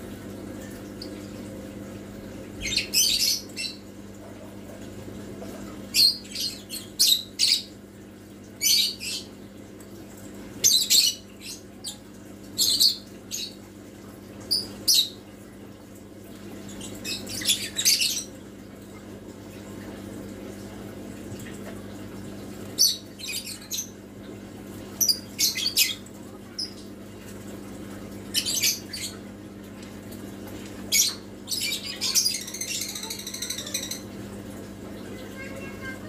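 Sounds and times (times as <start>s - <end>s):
bird chirping and squawking: 2.6s - 3.9s, 5.9s - 7.7s, 10.7s - 12.0s, 16.8s - 18.4s, 22.8s - 24.0s, 25.0s - 26.8s, 28.3s - 29.2s, 30.9s - 34.1s.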